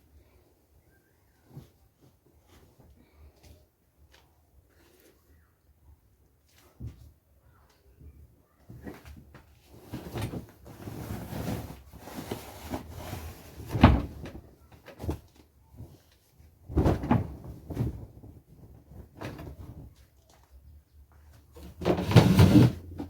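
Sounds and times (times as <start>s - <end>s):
bedding rustling: 8.8s - 20.0s.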